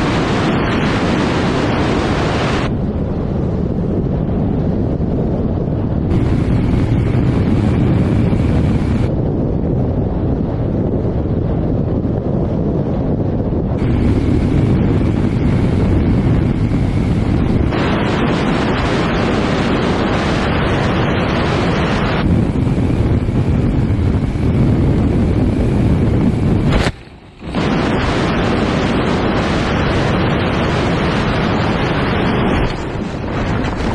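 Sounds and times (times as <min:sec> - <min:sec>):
wind rushing over microphone: 0:00.0 - 0:33.9.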